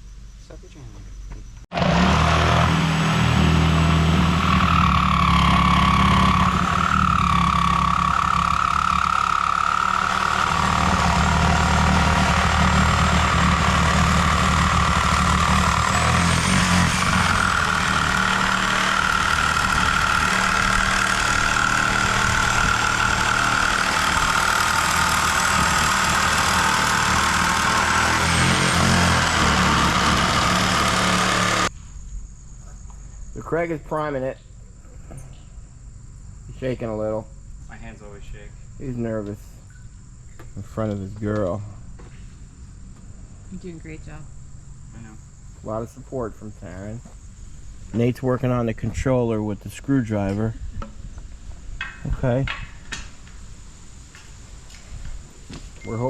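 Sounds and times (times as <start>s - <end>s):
engine running: 1.7s - 31.7s.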